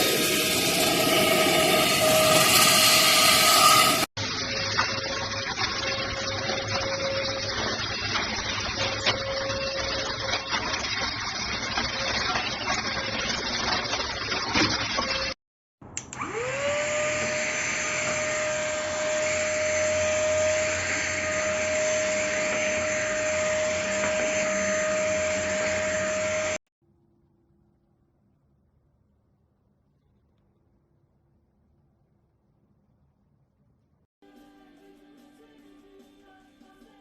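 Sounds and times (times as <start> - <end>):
vacuum cleaner running: 0.0 - 4.1, 16.1 - 26.6.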